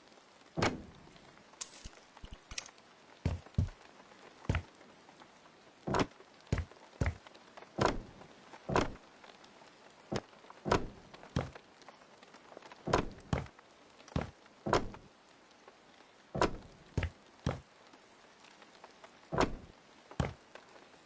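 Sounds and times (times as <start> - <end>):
knocks and thuds with ringing: 3.3 - 3.8, 5.9 - 7.2, 16.4 - 17.6.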